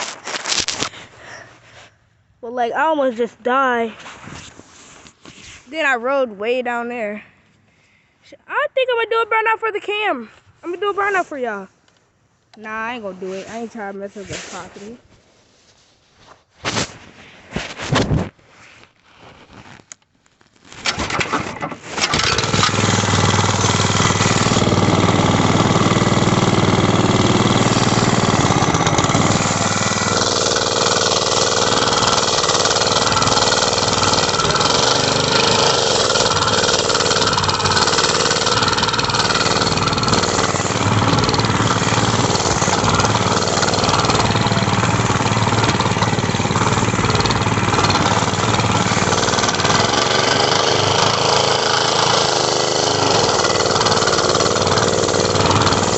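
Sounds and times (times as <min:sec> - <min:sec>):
mini bike engine running: 0:20.8 - 0:55.9.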